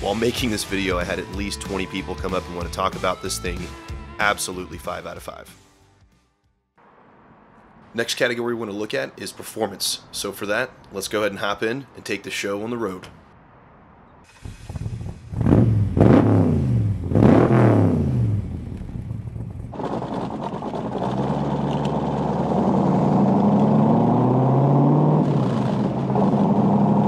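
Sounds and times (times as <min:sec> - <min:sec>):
car engine rumble pulling away: 0:14.1 - 0:27.0
car engine starting and revving: 0:14.2 - 0:27.0.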